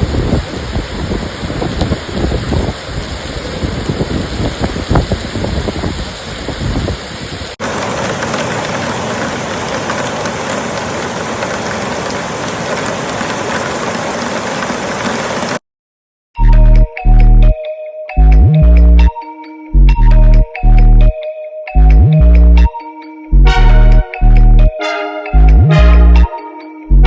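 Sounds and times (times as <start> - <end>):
wind rumbling on microphone: 0.0 - 7.6
heavy rain pouring: 0.0 - 15.6
music: 16.4 - 27.0.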